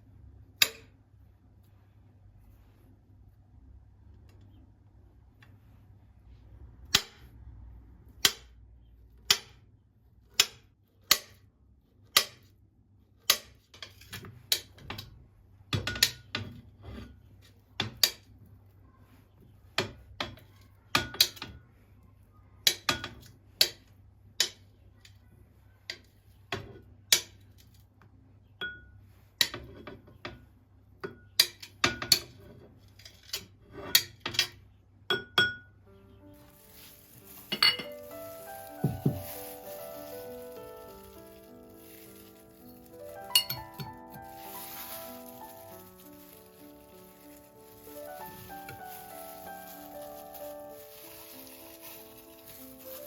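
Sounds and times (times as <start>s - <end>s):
small hard objects clicking: 36.6s - 53.0s.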